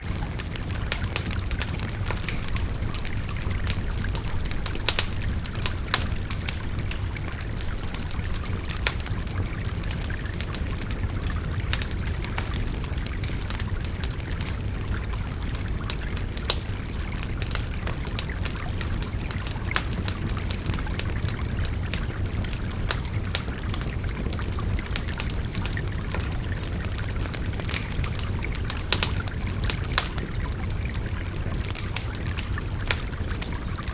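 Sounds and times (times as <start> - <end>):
wood fire crackling and popping: 0.0 - 33.9.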